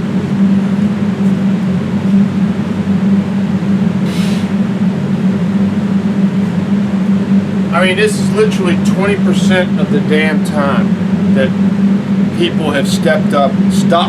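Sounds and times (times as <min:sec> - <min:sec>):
loud mechanical hum: 0:00.0 - 0:14.0
person blowing nose: 0:04.1 - 0:04.6.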